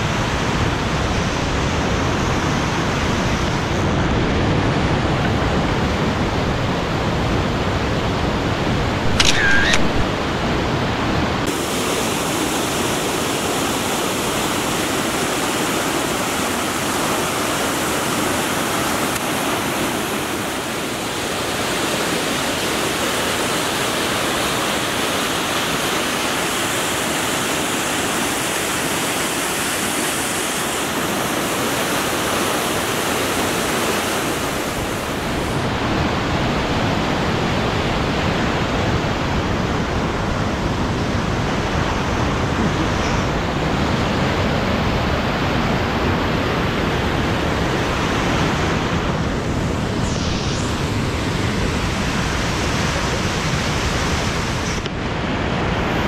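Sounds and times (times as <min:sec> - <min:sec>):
river water rushing: 0:00.0 - 0:56.0
high falling squeak: 0:09.1 - 0:10.0.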